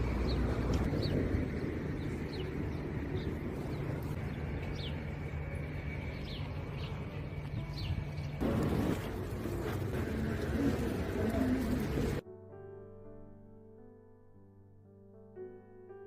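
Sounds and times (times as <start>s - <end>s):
steady low rumble: 0.0s - 7.8s
small birds chirping: 0.0s - 8.4s.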